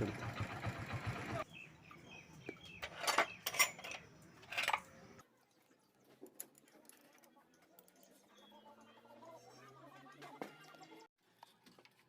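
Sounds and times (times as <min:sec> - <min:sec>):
metal tools clinking: 0:02.8 - 0:05.2.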